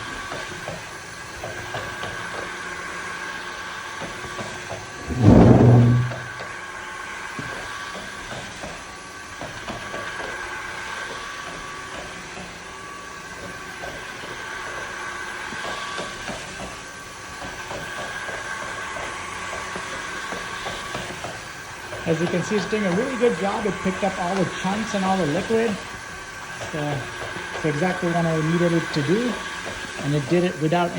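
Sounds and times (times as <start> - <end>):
vacuum mop motor whine: 22.0 - 26.0, 26.7 - 30.9.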